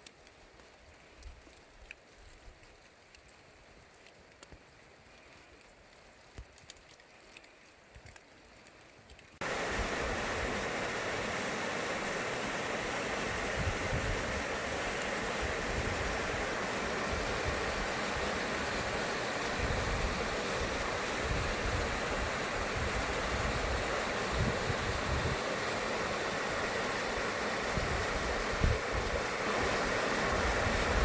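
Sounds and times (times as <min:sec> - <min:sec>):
water dripping: 0:00.0 - 0:29.6
faint rain: 0:00.0 - 0:31.0
stream rushing: 0:09.4 - 0:31.0.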